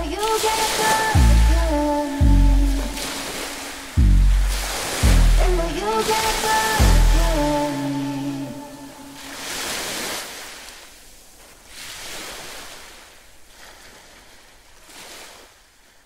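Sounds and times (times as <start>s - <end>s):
waves breaking on shore: 0.0s - 16.0s.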